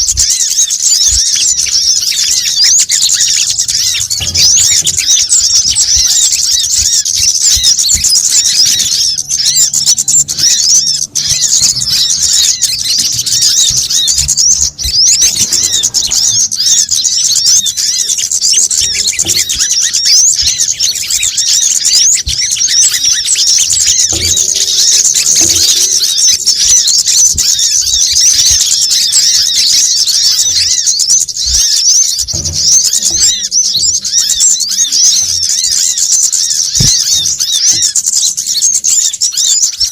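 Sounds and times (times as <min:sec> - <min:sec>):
sunbirds twittering: 0:00.0 - 0:39.9.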